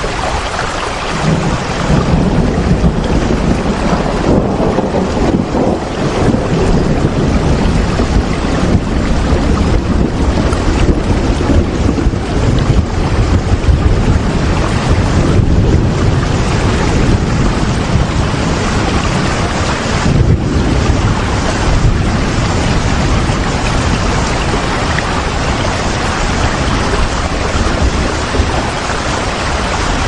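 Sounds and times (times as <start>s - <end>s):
steady rain hissing: 0.0s - 30.0s
low rumble: 1.1s - 29.5s.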